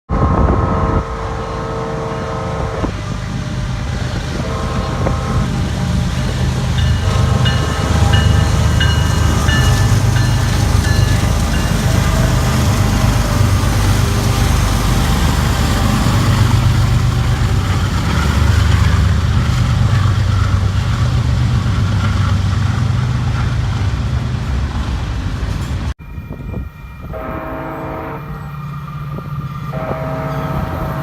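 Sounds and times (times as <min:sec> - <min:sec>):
train horn chord: 0:00.1 - 0:03.4, 0:04.3 - 0:05.8, 0:06.6 - 0:13.8, 0:26.0 - 0:28.6, 0:29.7 - 0:31.0
wind noise on microphone: 0:00.1 - 0:23.2, 0:25.4 - 0:31.0
train passing rumble: 0:00.1 - 0:31.0.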